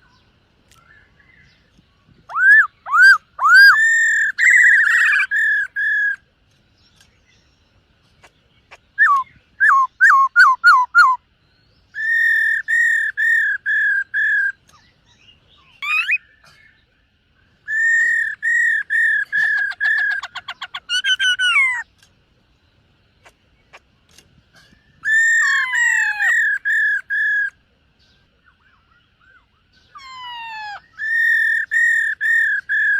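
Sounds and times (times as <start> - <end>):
bird whistling phrases: 2.3 - 6.2, 9.0 - 11.2, 11.9 - 14.9, 15.6 - 16.6, 17.6 - 21.9, 24.8 - 27.6, 28.4 - 32.9.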